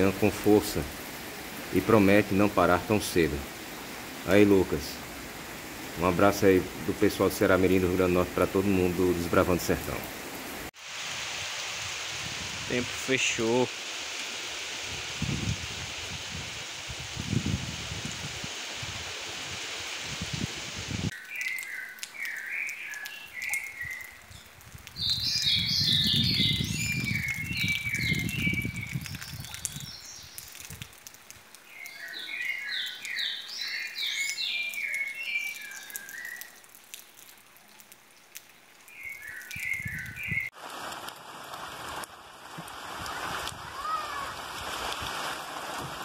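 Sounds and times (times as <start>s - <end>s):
songbird singing: 21.1s - 40.6s.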